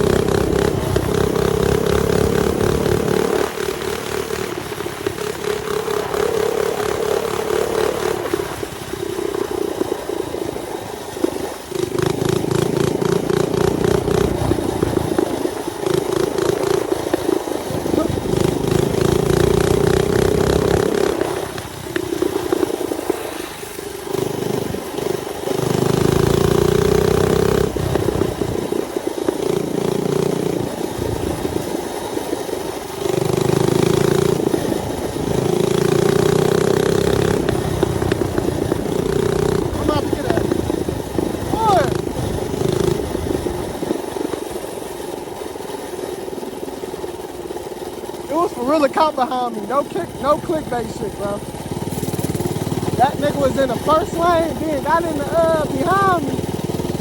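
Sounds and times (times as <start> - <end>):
mini bike engine running: 0.0 - 57.0
wind noise on microphone: 4.4 - 45.3.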